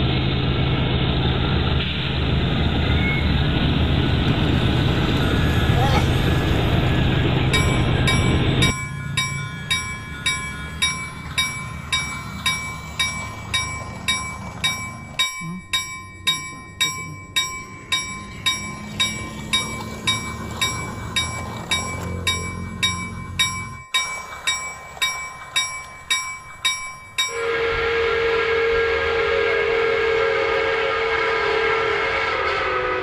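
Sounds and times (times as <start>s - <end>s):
crossing bell ringing: 4.4s - 30.8s
toy train humming on track: 4.4s - 32.0s.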